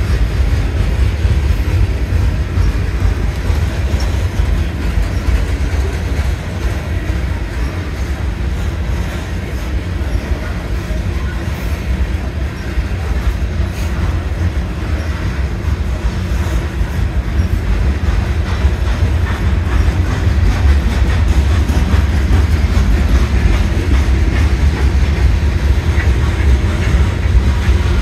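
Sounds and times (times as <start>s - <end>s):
freight train rumbling past: 0.0s - 28.0s
steel wheels clacking on rails: 0.0s - 28.0s.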